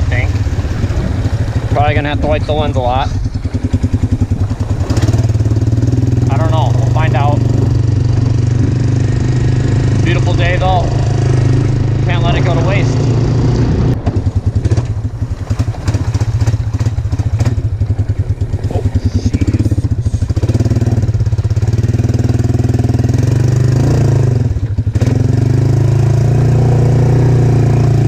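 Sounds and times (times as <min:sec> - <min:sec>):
atv engine running: 0:00.0 - 0:28.0.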